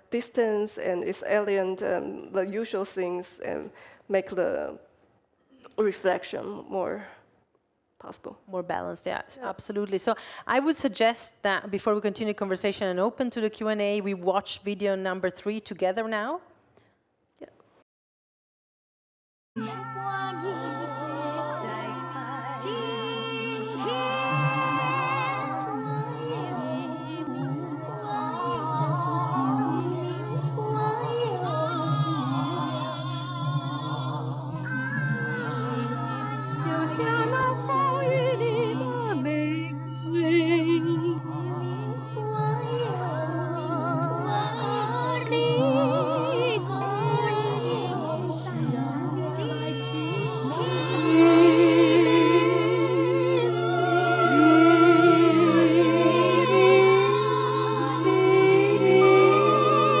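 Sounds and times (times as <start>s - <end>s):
voices humming and singing: 19.6s - 60.0s.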